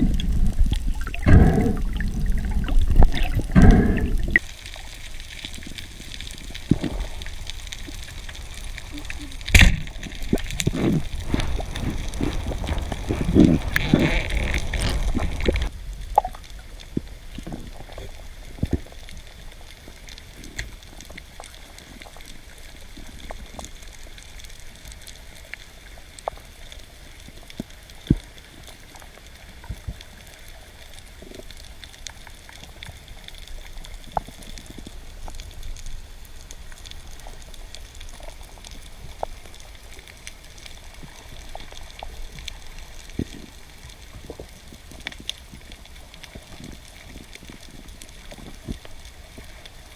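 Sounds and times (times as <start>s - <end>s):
sharp clicks and pops: 0.0s - 17.8s
underwater hiss and rumble: 0.0s - 49.9s.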